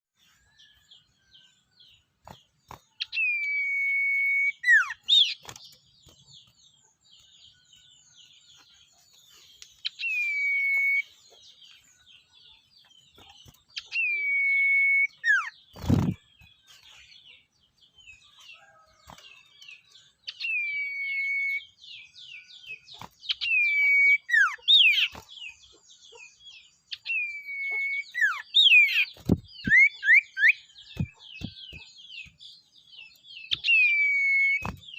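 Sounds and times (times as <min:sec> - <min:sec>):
bird whistling call: 0:09.8 - 0:11.1, 0:13.9 - 0:16.1, 0:33.5 - 0:34.8.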